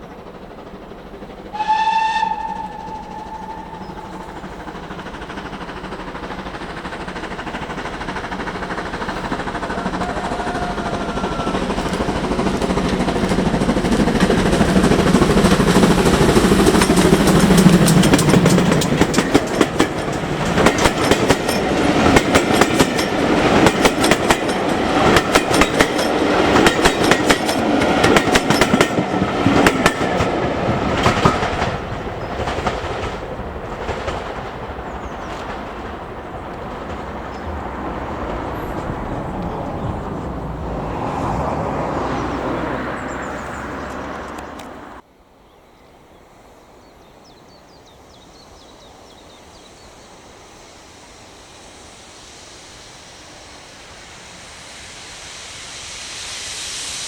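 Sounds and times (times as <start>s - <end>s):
wheels clattering over rail joints: 0.0s - 44.7s
steam train rumbling past: 0.0s - 45.2s, 46.0s - 57.0s.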